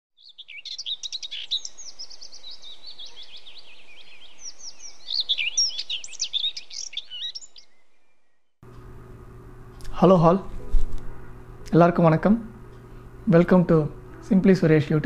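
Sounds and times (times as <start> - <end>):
small songbirds chirping: 0.2 - 8.6.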